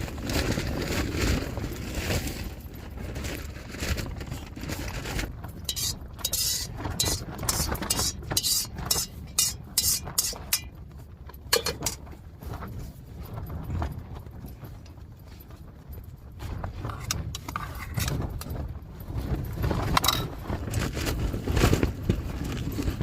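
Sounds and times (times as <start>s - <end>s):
wind buffeting a tent: 0.0s - 23.0s
spoon scraping in a dish: 5.7s - 10.7s, 16.9s - 18.1s.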